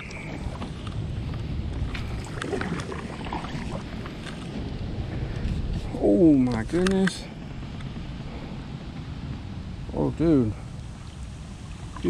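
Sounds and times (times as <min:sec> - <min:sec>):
wind buffeting microphone: 0:00.0 - 0:12.0
light clicks and taps of gear: 0:06.4 - 0:08.1.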